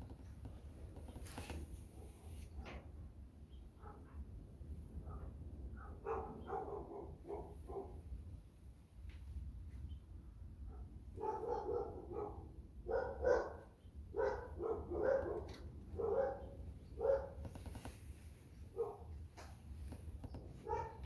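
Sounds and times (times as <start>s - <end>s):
dog barking: 3.8s - 4.3s, 5.0s - 8.0s, 10.6s - 17.5s, 18.7s - 19.2s, 20.6s - 21.0s.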